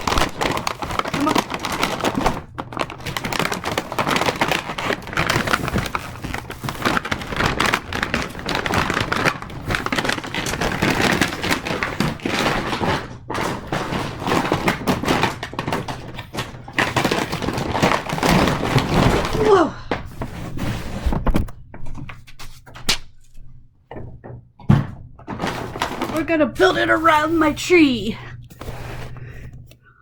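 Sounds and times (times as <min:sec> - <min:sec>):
packaging rustling and tearing: 0:00.0 - 0:19.6.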